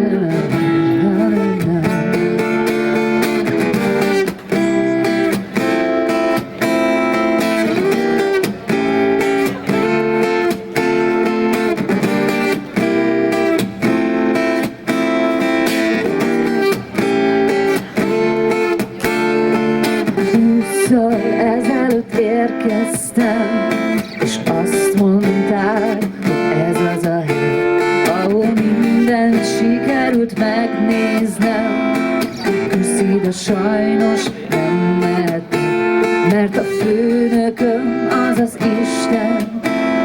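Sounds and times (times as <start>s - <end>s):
acoustic guitar strumming chords: 0.0s - 40.0s.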